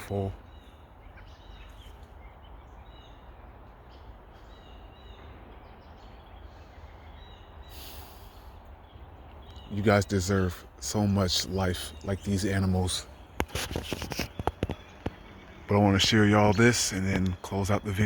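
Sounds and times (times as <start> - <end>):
faint bird chirps: 0.0 - 18.0
brief rustle: 13.4 - 15.2.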